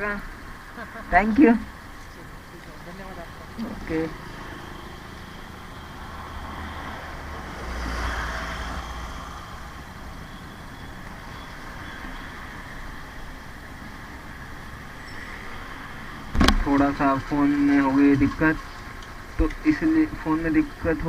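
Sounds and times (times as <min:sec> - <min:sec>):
rumble of road traffic: 0:00.0 - 0:21.0
vehicle passing by: 0:03.1 - 0:16.3.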